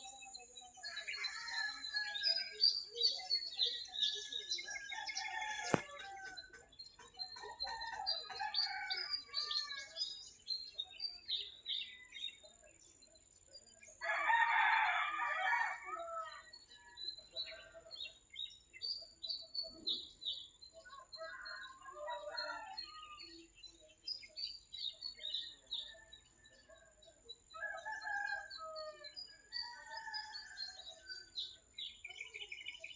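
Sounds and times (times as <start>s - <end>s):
small birds chirping: 0.0s - 32.9s
rooster crowing: 14.0s - 16.4s.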